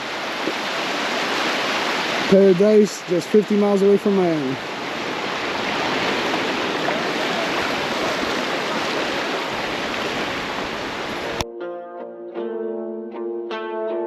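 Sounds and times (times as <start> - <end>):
surf rushing: 0.0 - 11.4
wind: 0.0 - 11.4
plucked string music: 11.2 - 14.0.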